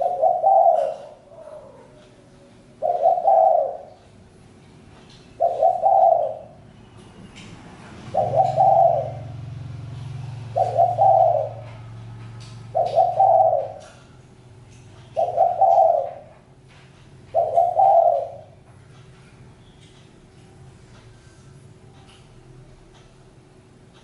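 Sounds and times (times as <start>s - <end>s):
dove cooing: 0.0s - 2.1s, 2.7s - 4.1s, 5.3s - 6.6s, 8.0s - 14.2s, 15.0s - 16.5s, 17.3s - 18.6s.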